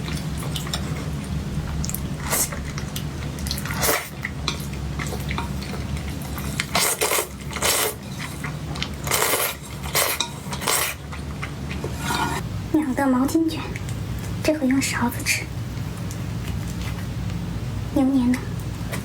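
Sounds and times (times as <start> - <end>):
steady low hum: 0.0 - 19.0
cutlery scraping on a plate: 11.8 - 12.4.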